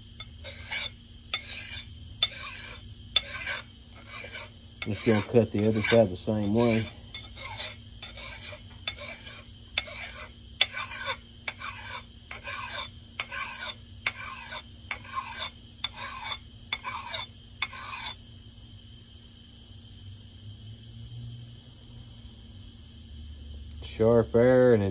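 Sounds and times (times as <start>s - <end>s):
metal file scraping steel: 0.2s - 18.2s.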